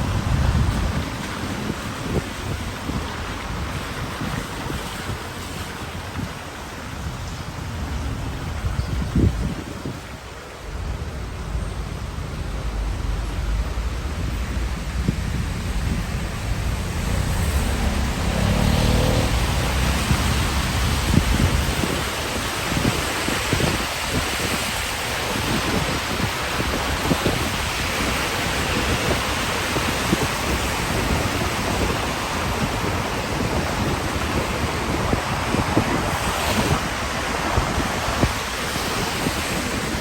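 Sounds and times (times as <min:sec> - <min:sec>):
steady rain hiss: 0:00.0 - 0:40.0
wind buffeting microphone: 0:00.0 - 0:40.0.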